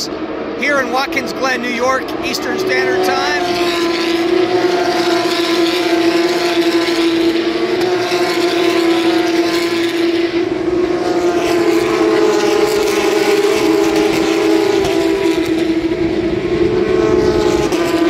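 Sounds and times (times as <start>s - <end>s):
race car engines at high revs: 0.0s - 18.0s.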